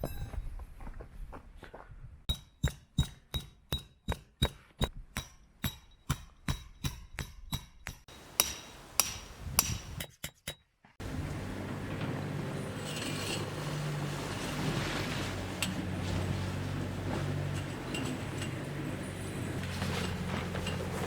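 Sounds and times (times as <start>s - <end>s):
hammer blows with metallic ring: 2.3s - 14.6s
steady low hum: 11.0s - 21.0s.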